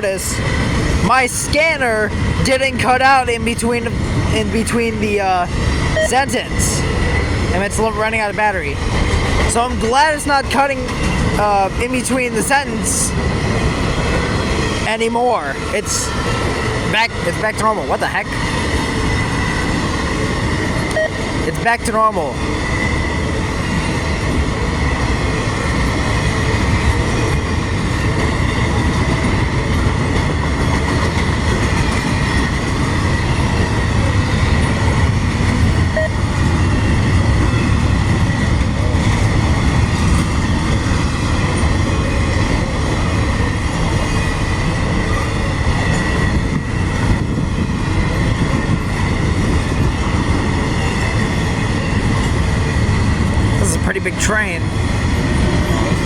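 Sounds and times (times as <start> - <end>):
freight train wheels clattering: 22.4 - 53.8.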